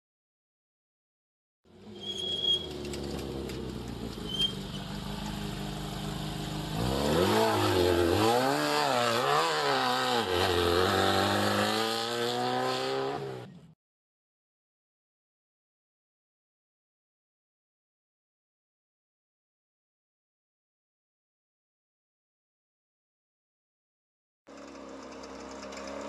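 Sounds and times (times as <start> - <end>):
car engine running and revving: 2.6 - 13.7, 24.5 - 26.0.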